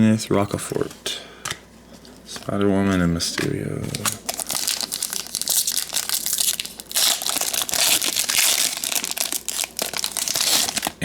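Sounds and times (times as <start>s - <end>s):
wrapper crinkling and crackling: 3.8s - 11.0s.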